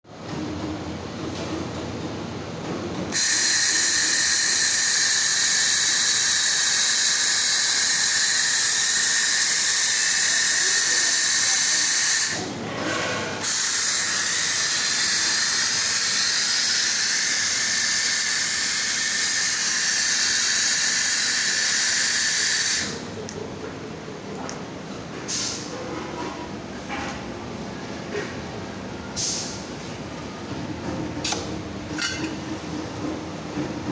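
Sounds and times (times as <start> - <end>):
laser welding hiss: 3.2 - 12.5, 13.5 - 23.0.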